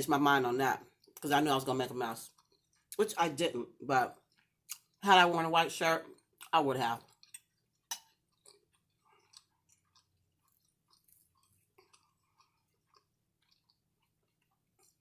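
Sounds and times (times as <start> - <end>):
person chewing food: 0.8 - 1.3, 2.1 - 3.0, 4.1 - 5.0, 6.0 - 15.0.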